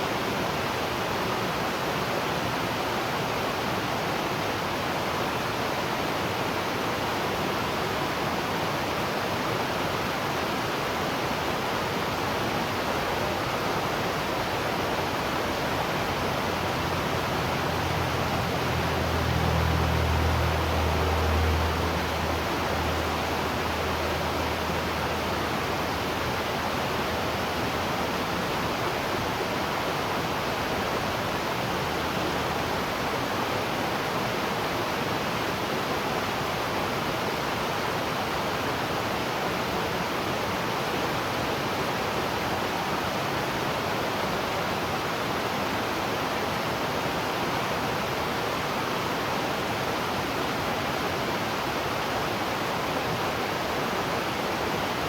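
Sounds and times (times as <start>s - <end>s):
waterfall rushing: 11.4s - 33.7s
low hum: 12.5s - 26.4s.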